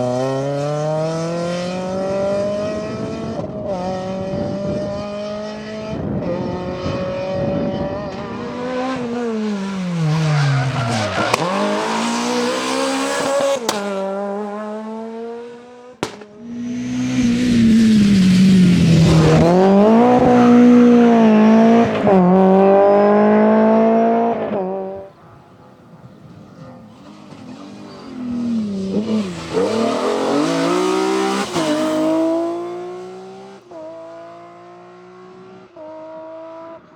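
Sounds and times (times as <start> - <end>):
rally car engine revving: 0.0 - 25.1, 26.6 - 36.9
tyre squeal: 9.6 - 13.3.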